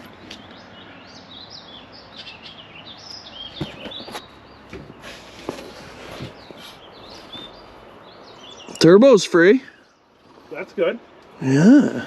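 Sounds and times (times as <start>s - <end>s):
songbirds chirping: 0.0s - 12.0s
steady background hiss: 4.2s - 12.0s.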